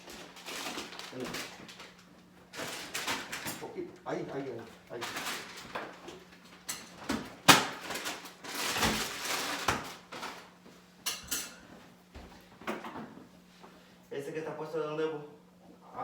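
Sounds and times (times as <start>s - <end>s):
refrigerator scuffing: 7.1s - 10.8s.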